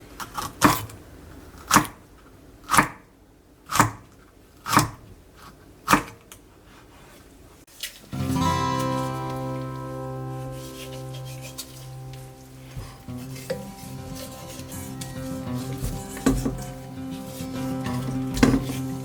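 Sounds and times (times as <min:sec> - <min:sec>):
music: 0:08.1 - 0:19.0.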